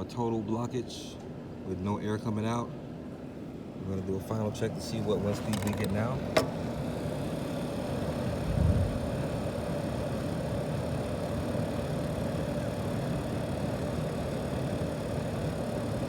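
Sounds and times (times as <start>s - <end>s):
air rushing from dryer vent: 3.9s - 16.0s.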